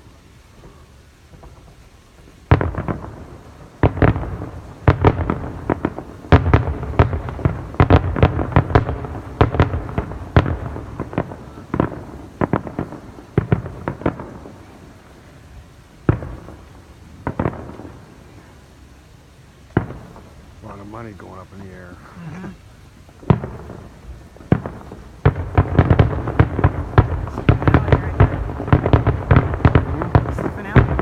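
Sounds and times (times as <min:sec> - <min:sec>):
fireworks bursting: 0:00.0 - 0:31.0.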